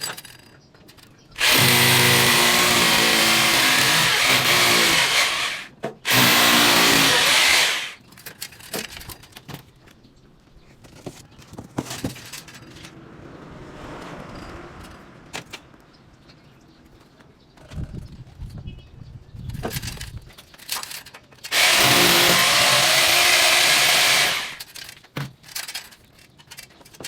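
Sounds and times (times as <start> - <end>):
power drill running: 1.4 - 8.0, 21.5 - 24.7.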